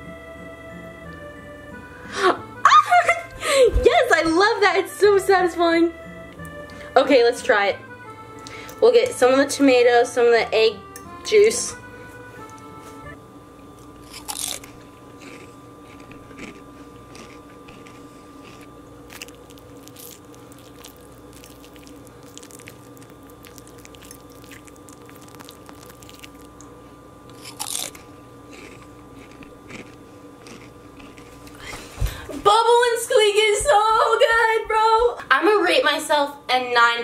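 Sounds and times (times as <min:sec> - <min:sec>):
faint steady hum: 0:00.0 - 0:37.0
person chewing food: 0:13.8 - 0:31.7.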